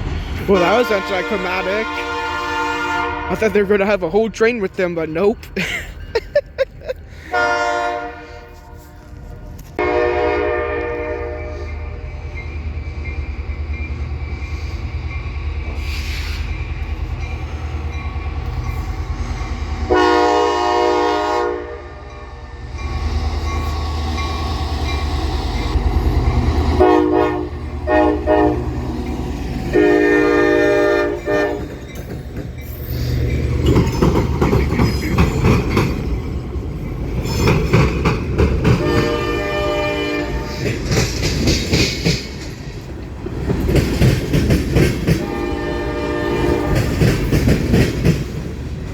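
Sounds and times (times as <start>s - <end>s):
locomotive engine rumble: 0.0s - 48.9s
locomotive air horn blasts: 0.5s - 3.5s, 7.3s - 11.6s, 19.9s - 22.1s, 26.8s - 28.7s, 29.7s - 31.7s, 38.8s - 40.6s, 45.2s - 46.9s
train wheels clattering: 22.8s - 48.9s.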